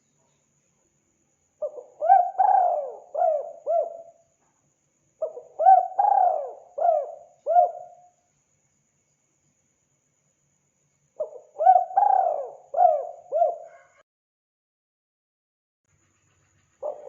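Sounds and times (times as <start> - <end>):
dove cooing: 1.6 - 4.2, 5.2 - 8.0, 11.2 - 14.0, 16.8 - 17.0.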